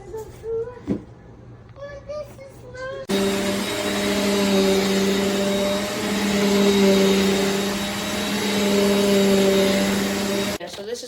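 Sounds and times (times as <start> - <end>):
vacuum cleaner running: 3.1 - 10.6.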